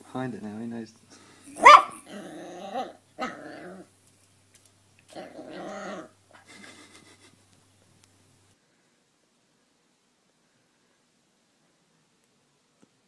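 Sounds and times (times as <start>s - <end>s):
puppy growling: 1.6s - 4.0s, 5.1s - 6.5s.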